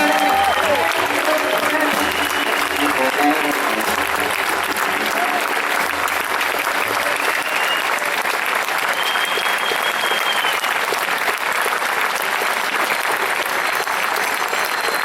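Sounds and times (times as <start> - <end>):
audience clapping: 0.0 - 15.0
high whistle: 7.2 - 8.0, 8.8 - 10.8, 14.5 - 15.0.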